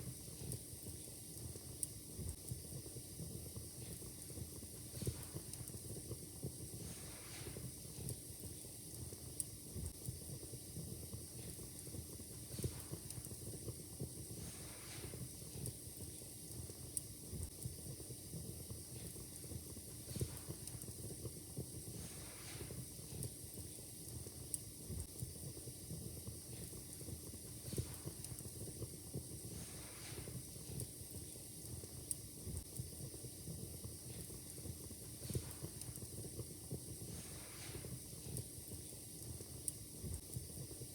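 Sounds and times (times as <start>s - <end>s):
wood fire crackling and popping: 0.0s - 40.9s
fire hissing flare-ups: 0.1s - 40.9s.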